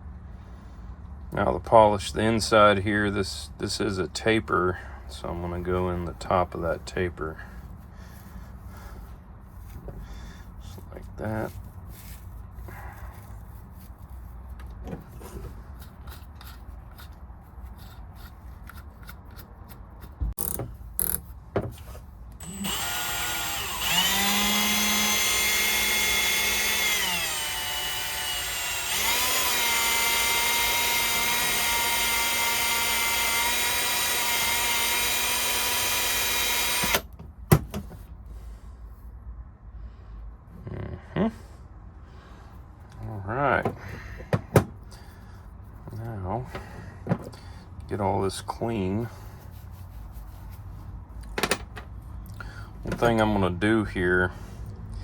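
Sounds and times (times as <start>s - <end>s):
electric drill motor whine: 22.4s - 37.0s.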